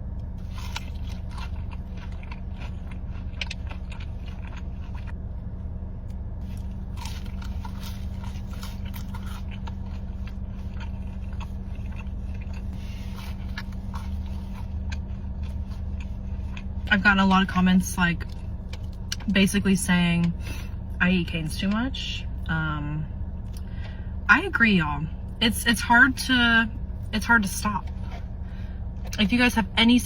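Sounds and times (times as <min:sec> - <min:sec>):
low hum: 0:00.0 - 0:30.0
crunching and chewing crisp food: 0:00.3 - 0:05.2, 0:06.1 - 0:19.6, 0:23.4 - 0:24.0, 0:26.7 - 0:29.3.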